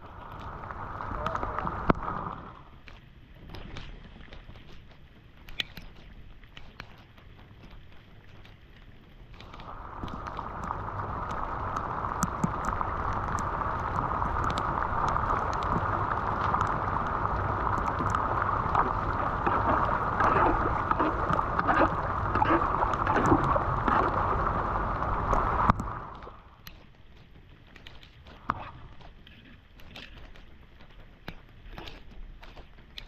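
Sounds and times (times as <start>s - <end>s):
water pouring into a drain: 0.0s - 2.6s, 9.4s - 26.4s.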